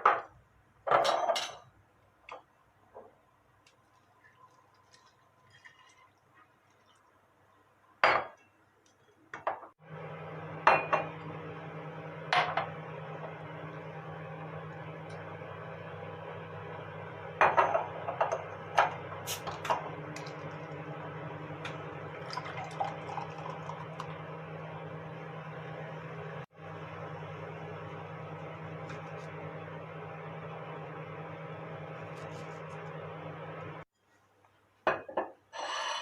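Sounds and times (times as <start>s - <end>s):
dishes and utensils clinking: 0.9s - 1.7s
appliance hum: 9.8s - 33.9s.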